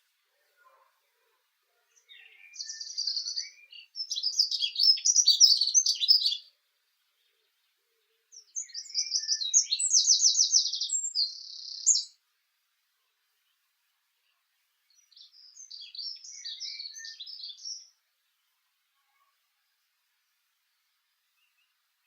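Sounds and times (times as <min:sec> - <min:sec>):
songbird singing trills: 0:01.9 - 0:12.2, 0:14.2 - 0:18.5.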